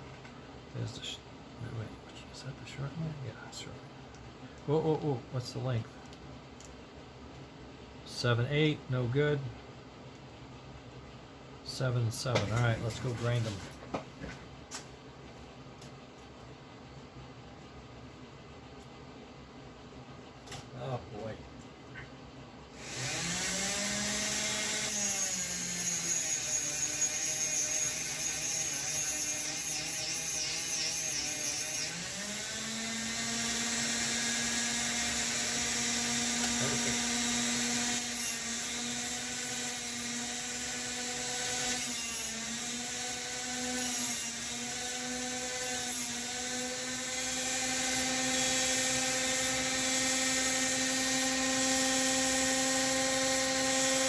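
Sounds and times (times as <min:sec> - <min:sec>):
rotary grinding tool whining: 0:22.8 - 0:54.0.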